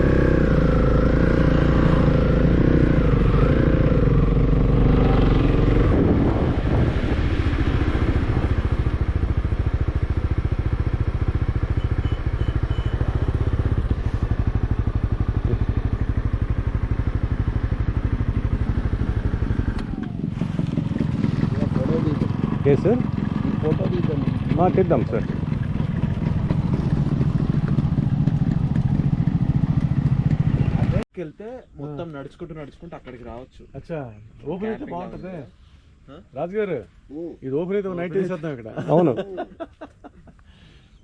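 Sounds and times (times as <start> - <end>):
motorcycle engine idling: 7.9 - 31.0.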